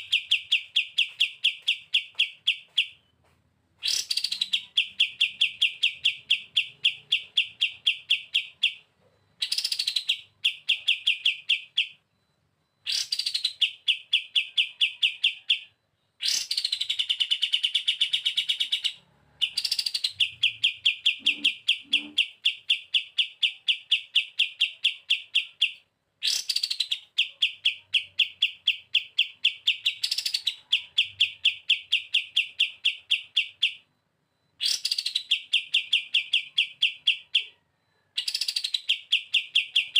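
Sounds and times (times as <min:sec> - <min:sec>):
bird song with rattling trills: 0:03.8 - 0:12.0.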